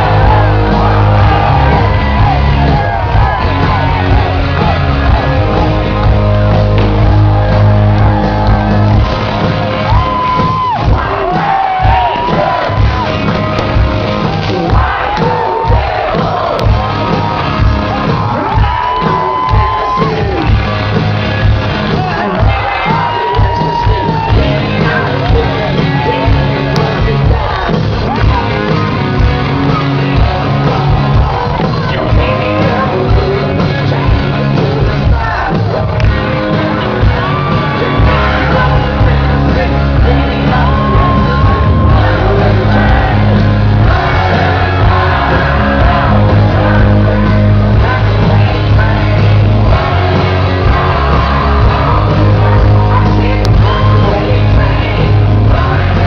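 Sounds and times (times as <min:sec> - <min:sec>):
shouted vocals: 0:00.0 - 0:13.2, 0:14.2 - 0:20.8, 0:21.8 - 0:56.0
rock band playing loudly: 0:00.0 - 0:56.0.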